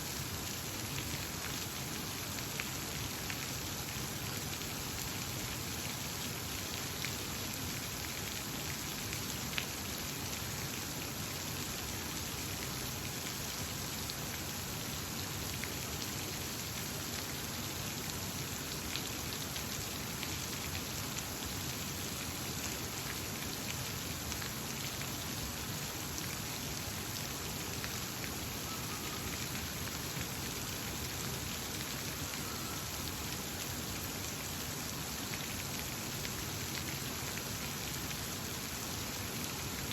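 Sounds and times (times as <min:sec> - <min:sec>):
faint bird calls: 0:28.6 - 0:29.4.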